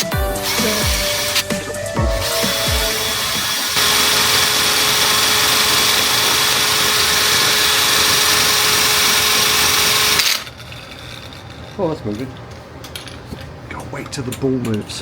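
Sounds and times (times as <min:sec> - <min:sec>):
power tool shaking spray can: 0:00.0 - 0:10.6.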